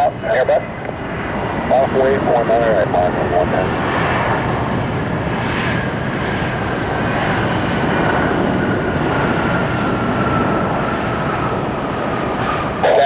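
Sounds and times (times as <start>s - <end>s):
jet engines running: 0.0s - 13.0s
high whine falling in pitch: 3.2s - 13.0s.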